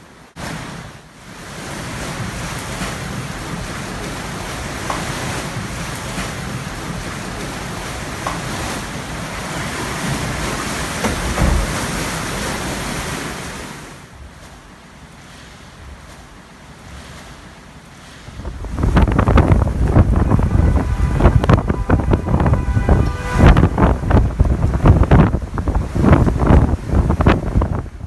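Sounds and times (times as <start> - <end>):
strong wind buffeting microphone: 18.0 - 28.0.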